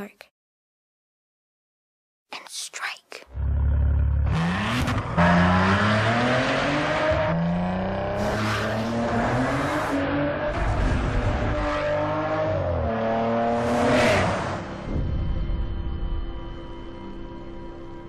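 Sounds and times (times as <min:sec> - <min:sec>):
car engine revving through gears: 0:03.3 - 0:14.9
car rushing past: 0:04.2 - 0:15.0.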